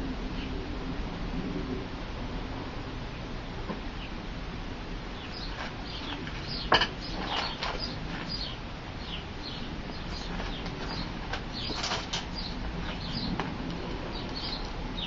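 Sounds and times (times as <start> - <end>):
small birds chirping: 5.1 - 15.0.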